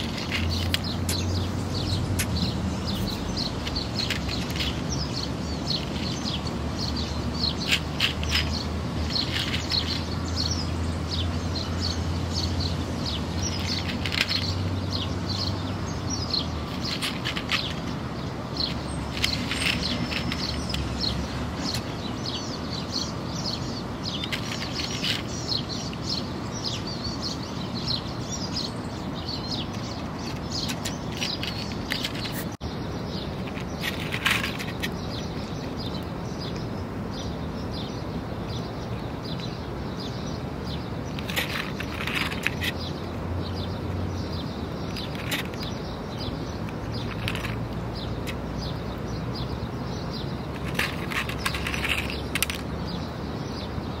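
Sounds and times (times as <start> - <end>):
small birds chirping: 0.0 - 54.0
steady background noise: 0.0 - 54.0.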